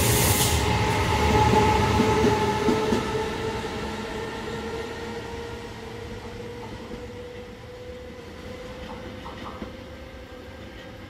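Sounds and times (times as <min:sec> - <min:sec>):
electric locomotive whine: 0:00.0 - 0:11.0
train wheels rumbling on rail: 0:00.0 - 0:11.0.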